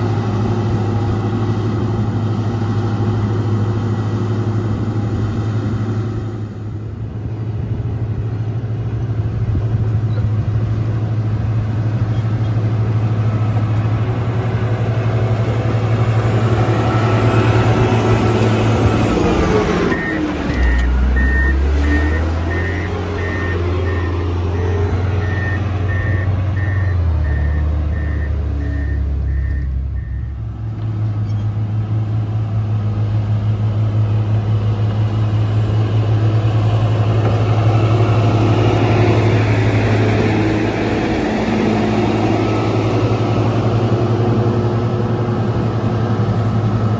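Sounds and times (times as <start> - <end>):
diesel engine running: 0.0 - 46.9
reversing alarm beeping: 19.9 - 30.4.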